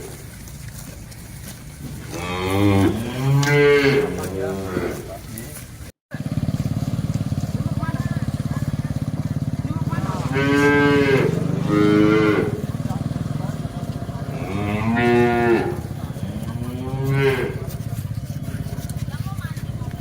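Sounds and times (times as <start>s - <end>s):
cattle mooing: 2.0s - 5.3s, 8.2s - 18.8s.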